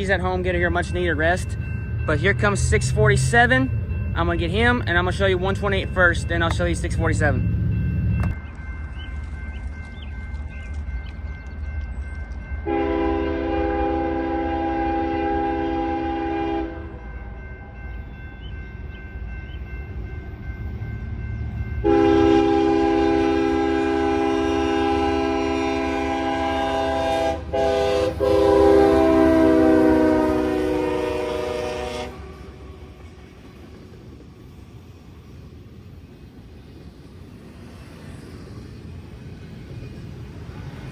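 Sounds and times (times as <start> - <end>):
train rumbling: 0.0 - 40.9
locomotive air horn: 12.6 - 17.0, 21.8 - 32.8.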